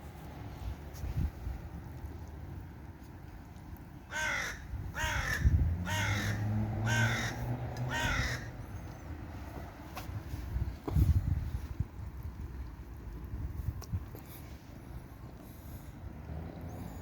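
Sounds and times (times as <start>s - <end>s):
crow cawing: 4.1s - 8.5s.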